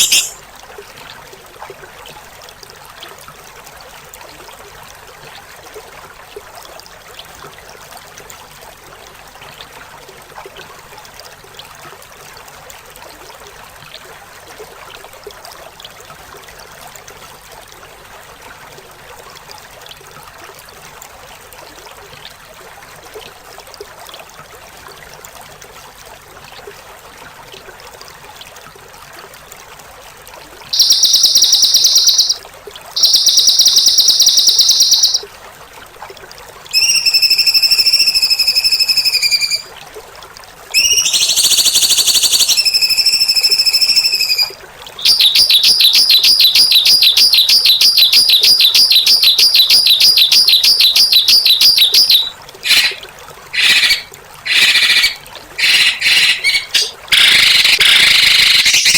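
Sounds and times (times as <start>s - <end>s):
harsh buzzy songbird calls: 0.0s - 0.4s, 30.7s - 32.4s, 33.0s - 35.2s, 36.8s - 39.7s, 40.8s - 58.9s
running water: 0.0s - 58.9s.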